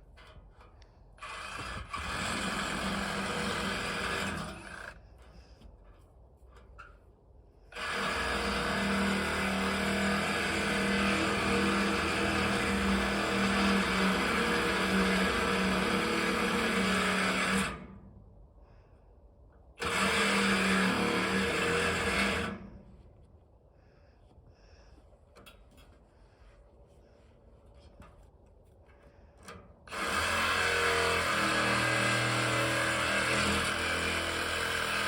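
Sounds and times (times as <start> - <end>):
reciprocating saw cutting metal: 1.2 - 5.0, 7.7 - 18.0, 19.8 - 22.7, 29.9 - 35.0.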